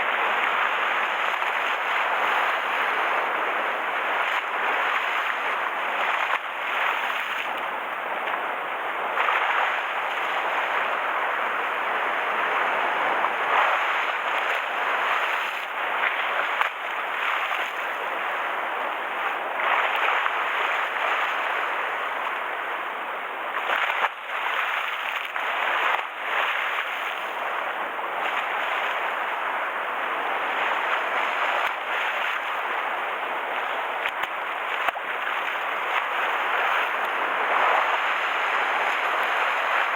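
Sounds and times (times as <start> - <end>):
rough sea waves splashing: 0.0 - 39.9
wind: 0.0 - 39.9.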